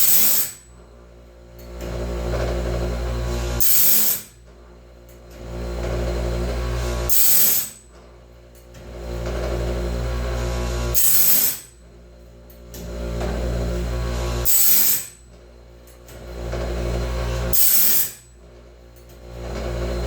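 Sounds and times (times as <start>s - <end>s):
bright grinding burst: 0.0s - 0.6s, 2.8s - 4.4s, 6.2s - 7.8s, 10.2s - 11.7s, 13.9s - 15.2s, 16.7s - 18.3s
motor hum: 0.0s - 20.0s.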